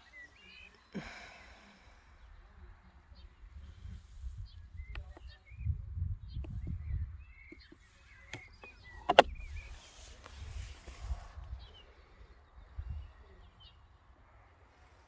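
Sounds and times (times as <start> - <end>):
sharp clicks: 8.3 - 9.4.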